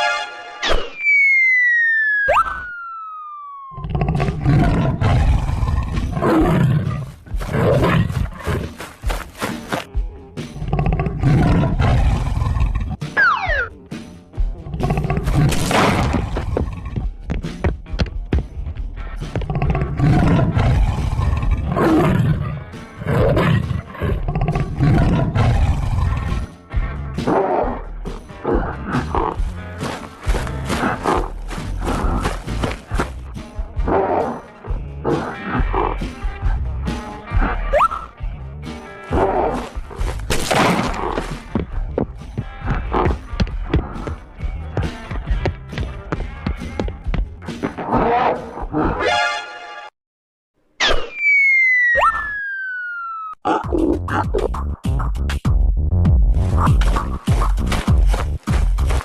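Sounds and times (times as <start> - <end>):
background music: 0.0 - 0.9, 3.8 - 49.9
falling whistle-like tone: 0.6 - 3.8, 50.8 - 53.4
big cat roaring: 3.8 - 8.5, 19.5 - 26.4.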